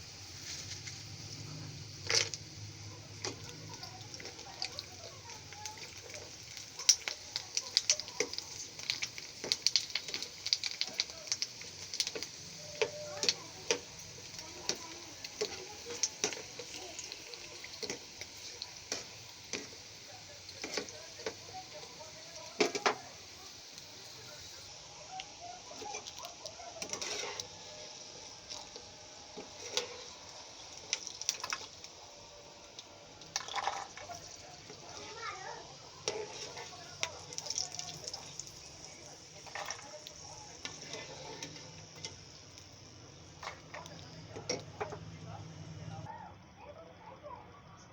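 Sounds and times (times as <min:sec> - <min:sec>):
food sizzling in a pan: 0:00.0 - 0:46.1
utensil tapping and scraping a pan: 0:03.2 - 0:19.9, 0:20.5 - 0:23.0, 0:25.8 - 0:27.5, 0:29.4 - 0:30.2, 0:36.0 - 0:42.3.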